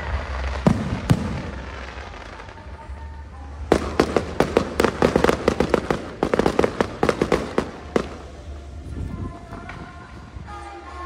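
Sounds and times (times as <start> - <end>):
crackling firework pops: 0.0 - 2.5, 3.7 - 8.4.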